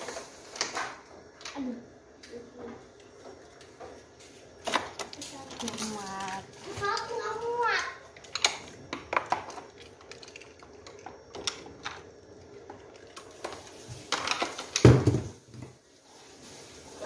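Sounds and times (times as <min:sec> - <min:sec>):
toy cars clicking and clattering: 0:04.6 - 0:15.2.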